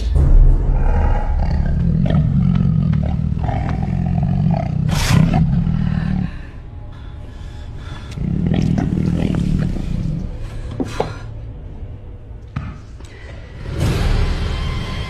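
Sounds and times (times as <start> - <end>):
tiger roaring: 0.7 - 6.4, 8.0 - 10.5.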